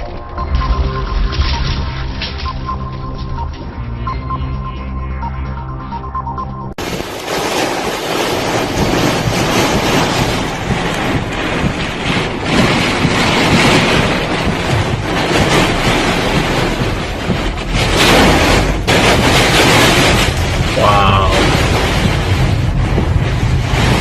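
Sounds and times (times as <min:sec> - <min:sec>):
wind buffeting microphone: 0:06.8 - 0:24.0.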